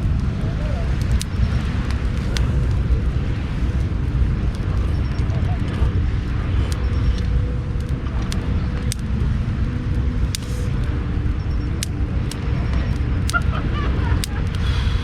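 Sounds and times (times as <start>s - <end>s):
bonfire rumble: 0.0s - 15.0s
fire crackling and popping: 0.0s - 15.0s.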